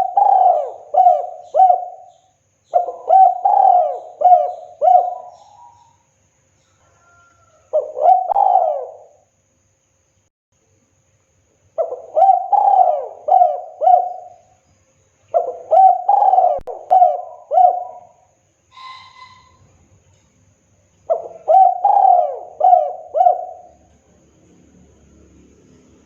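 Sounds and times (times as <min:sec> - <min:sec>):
dove cooing: 0:00.0 - 0:05.9, 0:07.0 - 0:09.3, 0:11.8 - 0:14.5, 0:15.3 - 0:19.6, 0:21.1 - 0:23.9
short higher bird call: 0:18.7 - 0:19.8.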